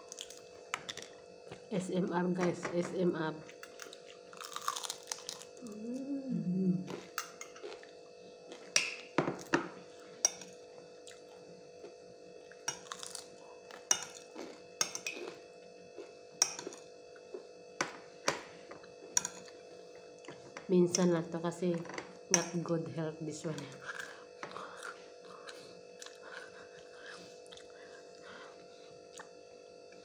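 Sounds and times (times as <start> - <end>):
crunchy chewing: 3.5 - 5.8, 6.9 - 10.1, 11.0 - 17.5, 23.8 - 29.3
person humming: 5.6 - 7.0.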